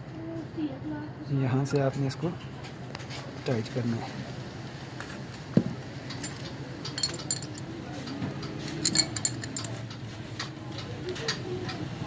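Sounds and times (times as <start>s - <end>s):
hand tools clicking and clinking: 6.1s - 7.8s, 8.4s - 10.1s.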